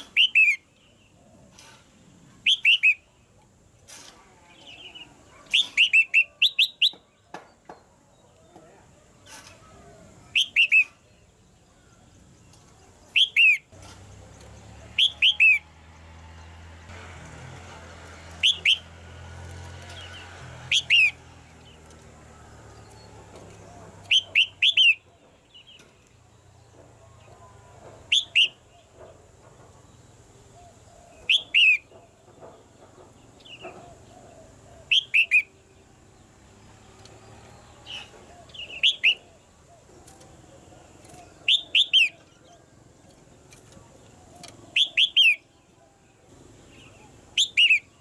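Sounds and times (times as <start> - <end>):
bird calling: 0.0 - 3.4, 4.0 - 7.5, 8.2 - 13.8, 14.8 - 15.7, 18.3 - 18.9, 19.8 - 21.2, 22.8 - 25.9, 27.0 - 29.3, 30.0 - 32.6, 33.2 - 35.8, 37.5 - 46.0, 46.6 - 48.0.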